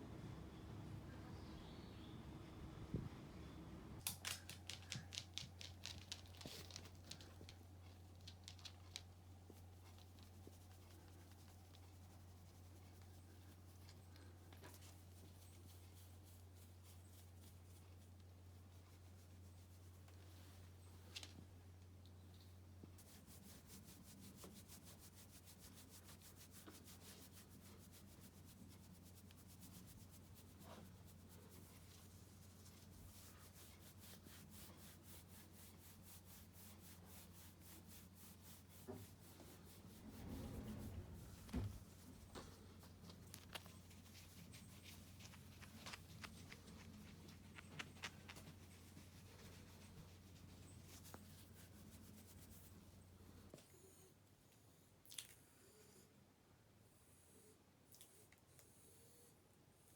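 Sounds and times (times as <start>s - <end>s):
low steady hum: 0.0s - 55.5s
dog claws clicking on hard floor: 4.0s - 9.2s.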